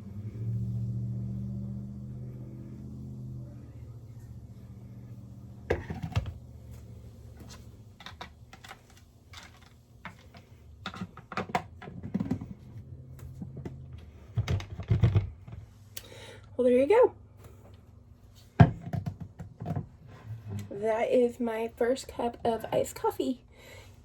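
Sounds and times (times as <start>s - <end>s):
faint low hum: 0.0s - 24.0s
objects handled on countertop: 5.7s - 15.8s, 17.4s - 20.8s.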